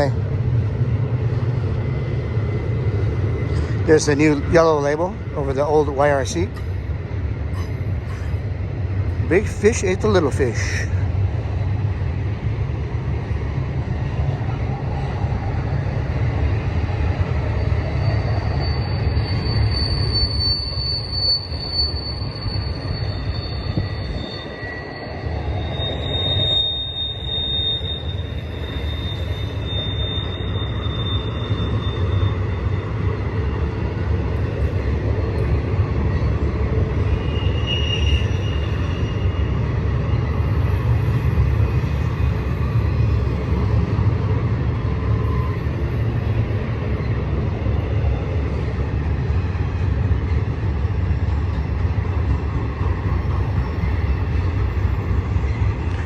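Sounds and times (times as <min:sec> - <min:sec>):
train wheels rumbling on rail: 0:00.0 - 0:56.0
high wheel squeal: 0:17.1 - 0:33.3, 0:36.1 - 0:47.4, 0:50.2 - 0:56.0.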